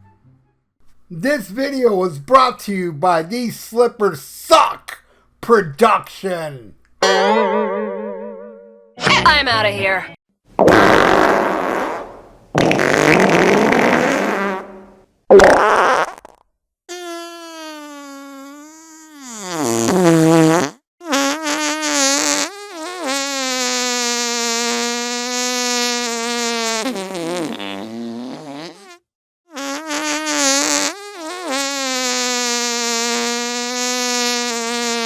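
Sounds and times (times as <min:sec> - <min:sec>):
fart-like buzzing: 0:10.6 - 0:35.0.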